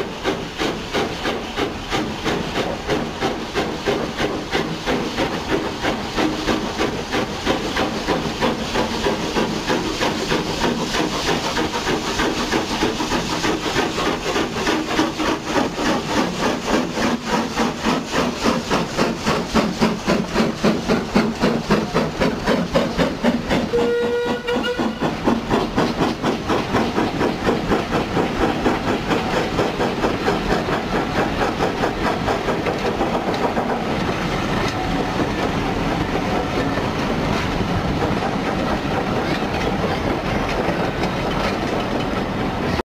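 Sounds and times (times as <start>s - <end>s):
steam locomotive exhaust beats: 0.0s - 42.8s
steam whistle: 23.7s - 25.0s.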